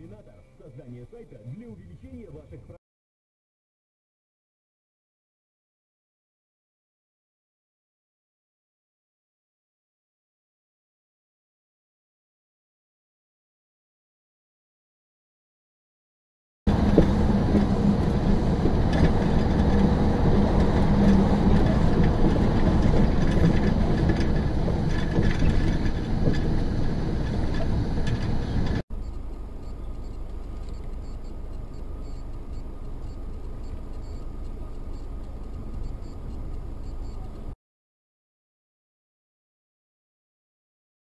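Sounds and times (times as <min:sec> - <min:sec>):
vehicle driving rumble: 0:16.7 - 0:37.6.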